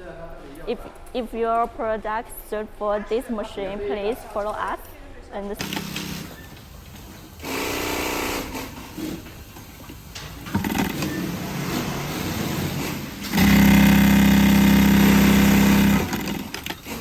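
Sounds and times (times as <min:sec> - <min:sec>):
industrial sewing machine stitching: 0:05.6 - 0:17.0.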